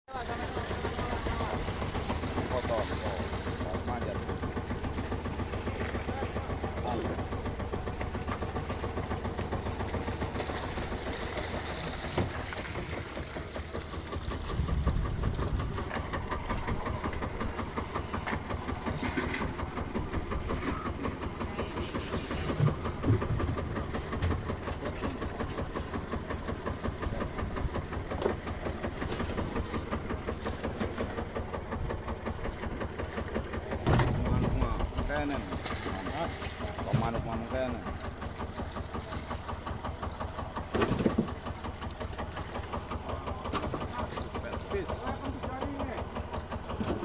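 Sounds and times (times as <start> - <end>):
boat engine chugging: 0.1 - 47.0
loud knocks: 33.8 - 34.6.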